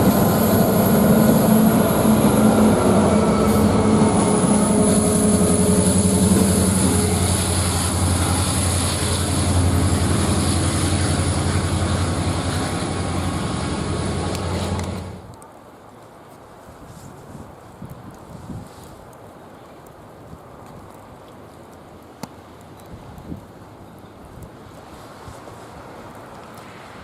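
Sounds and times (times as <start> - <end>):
diesel locomotive engines droning: 0.0 - 15.4
rolling rail noise: 0.0 - 17.8.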